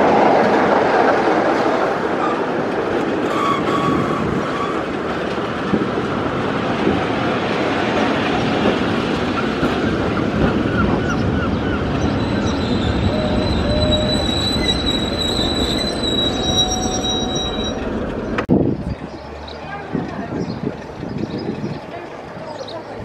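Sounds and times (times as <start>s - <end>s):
train rumbling along rails: 0.0s - 23.0s
wheels squealing on rails: 2.0s - 5.5s, 9.2s - 18.4s.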